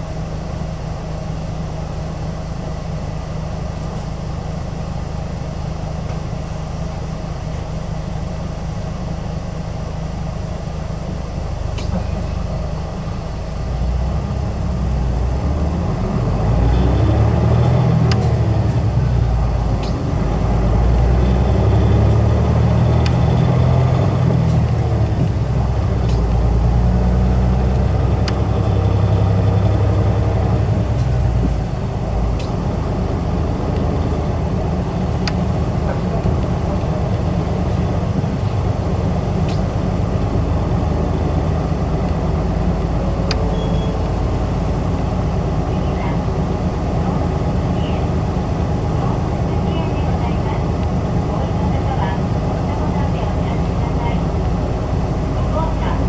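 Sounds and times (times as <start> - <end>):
bus engine accelerating: 0.0 - 56.0
bus body clicks and rattles: 11.0 - 13.2, 17.5 - 45.6.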